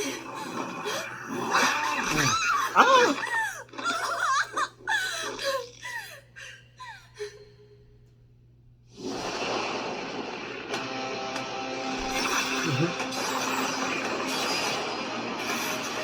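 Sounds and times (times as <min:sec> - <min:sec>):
person laughing: 0:02.1 - 0:05.6, 0:12.6 - 0:13.0.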